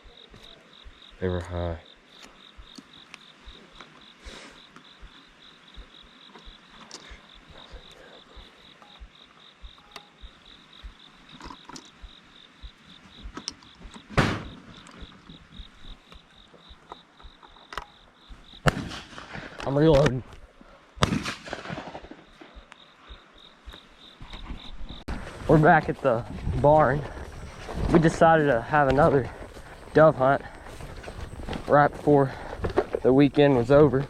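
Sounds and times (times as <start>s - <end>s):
insect trilling: 0.0s - 18.7s, 22.2s - 34.0s
shotgun shot: 14.1s - 14.6s, 18.6s - 19.6s, 21.0s - 22.6s.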